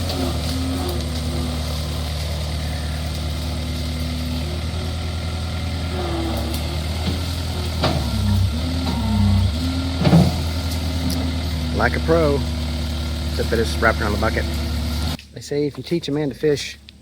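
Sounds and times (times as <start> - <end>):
high whining tone: 0.0 - 15.2
skid steer engine running: 0.0 - 15.2.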